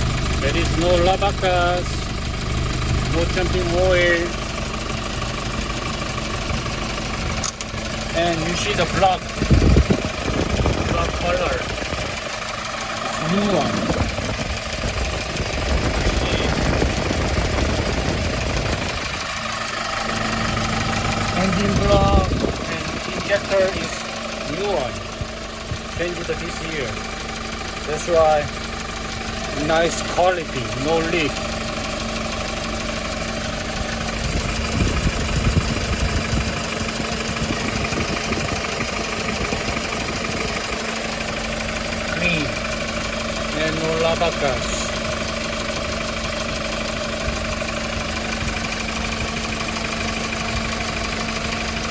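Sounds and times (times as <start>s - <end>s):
diesel engine idling: 0.0s - 51.9s.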